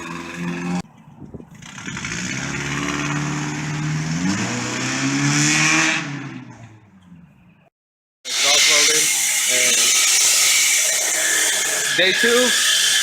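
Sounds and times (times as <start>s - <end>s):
car engine through loud exhaust: 0.0s - 0.8s, 1.5s - 7.4s.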